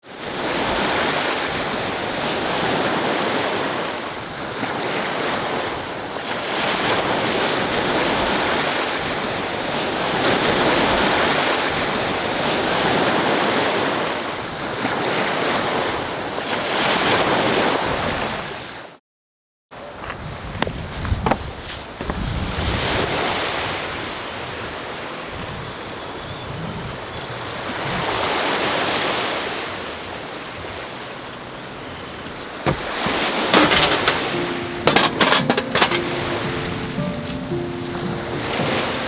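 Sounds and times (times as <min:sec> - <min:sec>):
sea waves breaking on shore: 0:27.7 - 0:39.0.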